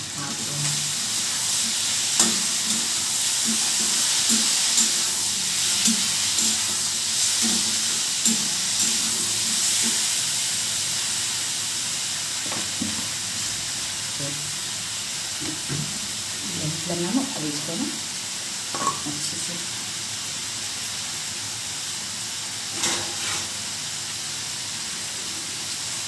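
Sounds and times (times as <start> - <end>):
vegetables sizzling in oil: 0.0 - 26.0
spoon knocking against pan: 18.7 - 19.1.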